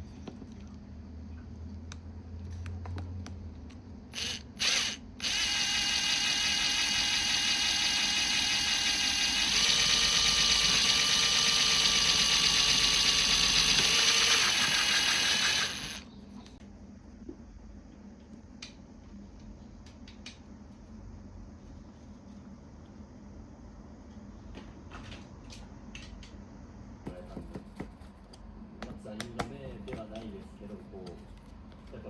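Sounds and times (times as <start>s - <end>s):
electric power tool motor whining: 4.1s - 16.0s.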